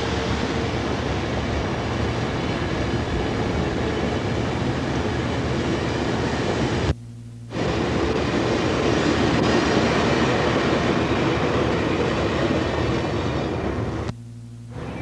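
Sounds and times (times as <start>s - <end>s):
train wheels rumbling on rails: 0.0s - 6.9s, 7.5s - 14.1s
low hum: 6.7s - 15.0s.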